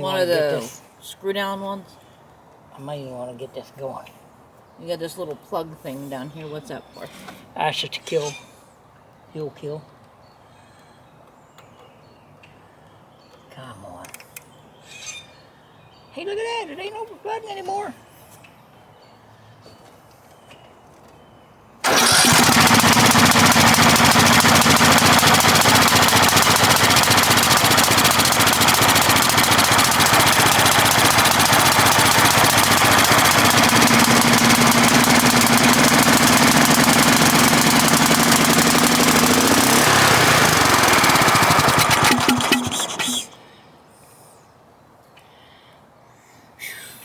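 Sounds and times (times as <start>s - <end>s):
riding mower engine running: 21.8s - 43.4s.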